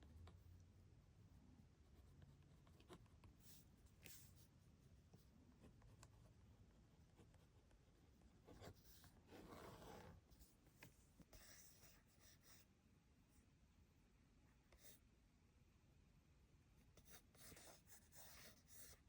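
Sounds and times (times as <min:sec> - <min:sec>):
pencil scratching on paper: 0:01.8 - 0:04.6, 0:05.2 - 0:10.6, 0:11.2 - 0:12.7, 0:16.9 - 0:19.0.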